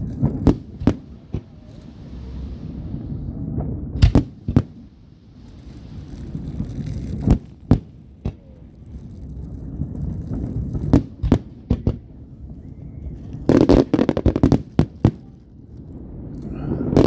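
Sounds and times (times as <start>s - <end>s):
aerial fireworks bangs: 0.0s - 8.6s, 9.7s - 12.2s, 13.0s - 15.3s.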